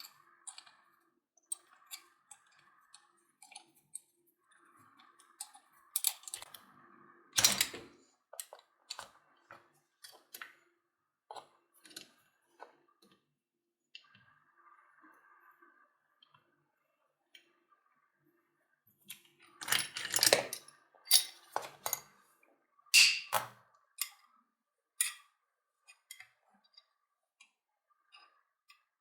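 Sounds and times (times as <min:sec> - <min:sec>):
tools clattering on workbench: 0:19.6 - 0:22.1, 0:23.0 - 0:23.5.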